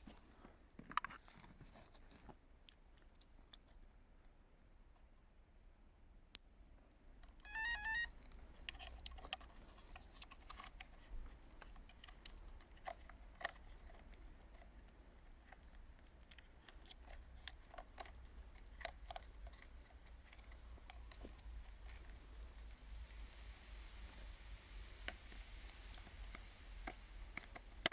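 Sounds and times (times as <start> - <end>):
faint clicks and knocks: 7.1 - 27.9.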